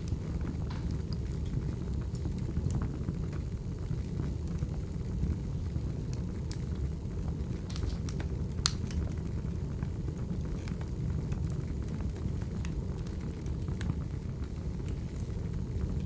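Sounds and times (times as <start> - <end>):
sharp pops of fire: 0.0 - 3.5, 5.9 - 14.0
wood fire crackling: 0.0 - 16.0.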